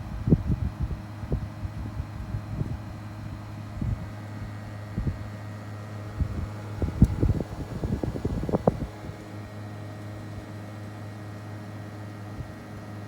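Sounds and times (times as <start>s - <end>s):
low thumps of wind buffeting: 0.0s - 10.6s
air conditioner unit humming: 0.0s - 13.0s.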